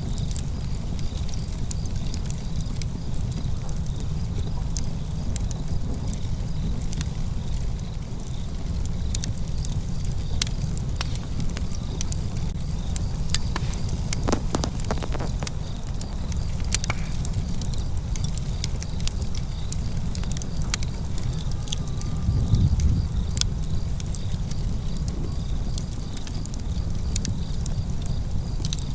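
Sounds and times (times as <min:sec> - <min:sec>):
wood fire crackling: 0:12.2 - 0:18.7
sharp pops: 0:12.6 - 0:16.2.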